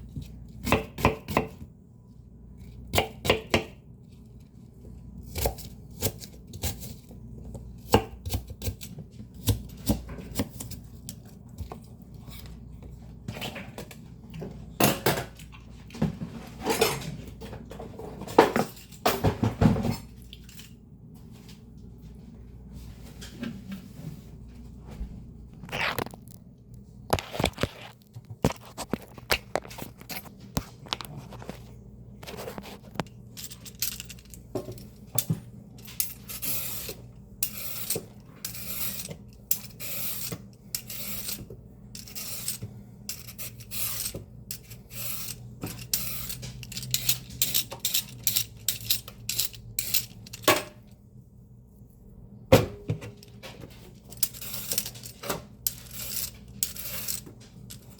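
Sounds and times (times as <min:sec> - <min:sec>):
knife chopping leafy greens: 0:00.2 - 0:01.6.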